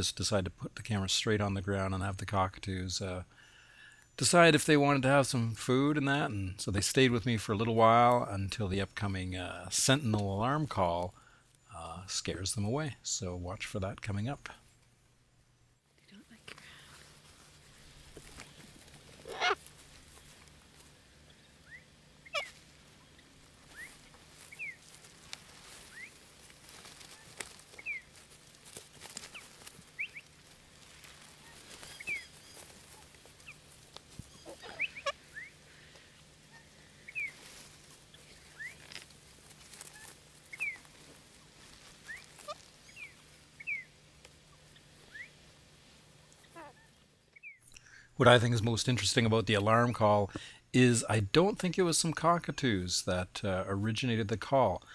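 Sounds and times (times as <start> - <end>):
birds chirping: 3.2 - 48.5
harsh bird calls: 17.7 - 20.4, 21.2 - 24.9, 27.0 - 28.2, 29.2 - 30.4, 31.0 - 37.5, 38.1 - 39.0, 39.8 - 40.9, 42.0 - 45.4.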